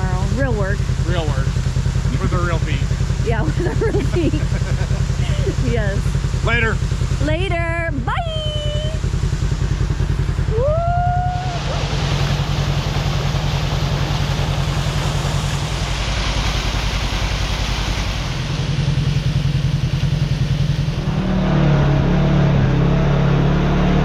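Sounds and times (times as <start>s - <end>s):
vehicle engine running: 0.0s - 24.0s
road and wind noise: 8.9s - 10.6s.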